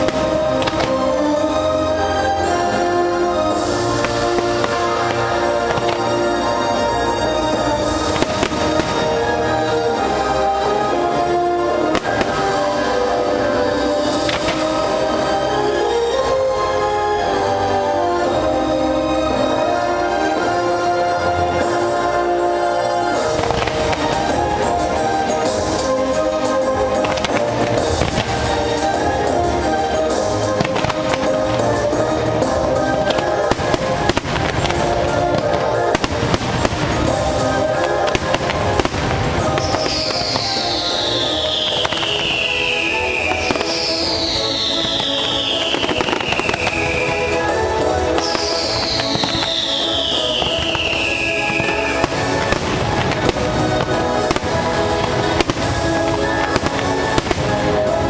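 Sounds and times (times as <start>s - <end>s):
fireworks bangs: 0.0s - 16.6s, 19.3s - 58.0s
loud soundtrack music: 0.0s - 58.0s
high falling whistle: 39.5s - 52.3s.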